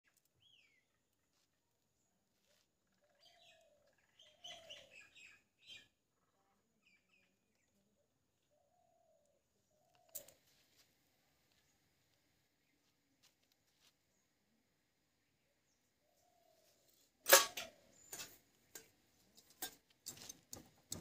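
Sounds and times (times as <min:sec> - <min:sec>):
lower falling bird calls: 0:02.4 - 0:06.0
high bird chirps: 0:02.9 - 0:07.8.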